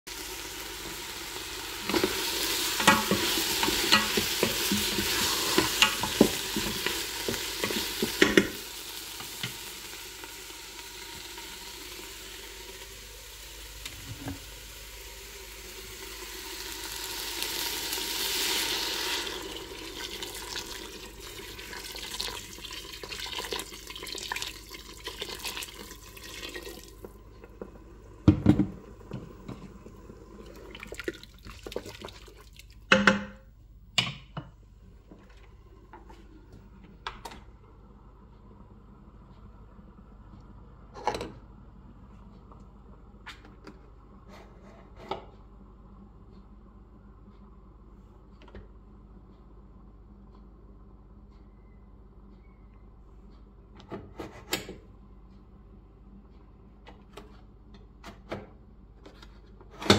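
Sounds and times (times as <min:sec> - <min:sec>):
food sizzling in a pot: 0:00.1 - 0:27.3.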